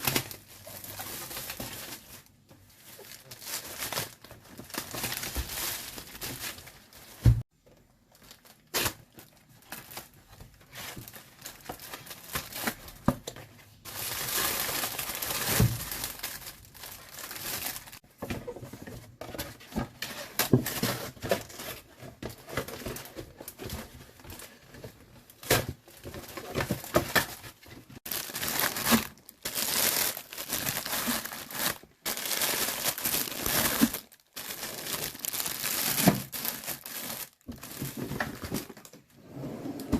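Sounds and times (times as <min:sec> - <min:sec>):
plastic bags crinkling: 0:00.0 - 0:07.2, 0:13.8 - 0:18.0, 0:22.5 - 0:39.0.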